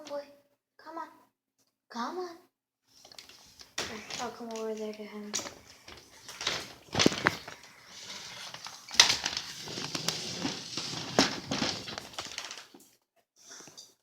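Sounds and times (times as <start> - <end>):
rustling: 2.9 - 12.8
footsteps: 3.2 - 12.4.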